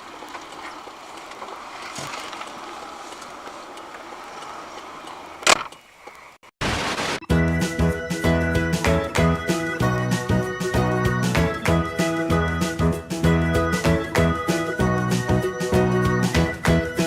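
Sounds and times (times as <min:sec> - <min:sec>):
car road and engine noise: 0:00.0 - 0:06.4.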